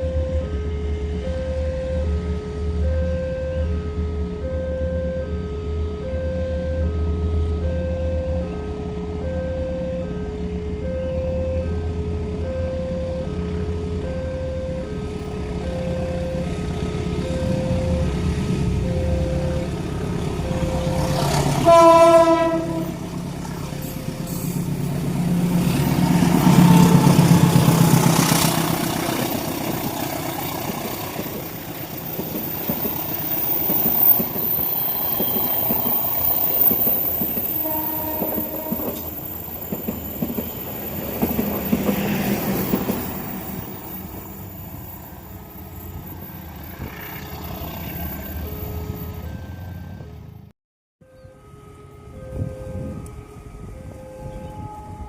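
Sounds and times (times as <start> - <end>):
passing train rumble: 0.0 - 50.5, 51.1 - 55.0
train horn blast: 15.8 - 29.5, 35.0 - 39.2, 51.1 - 55.0.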